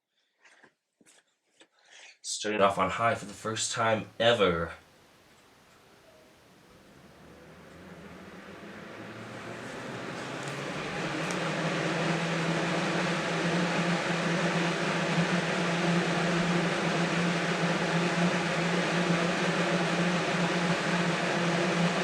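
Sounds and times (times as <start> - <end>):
box fan motor hum: 5.5 - 22.0
rushing air from fan: 6.5 - 22.0.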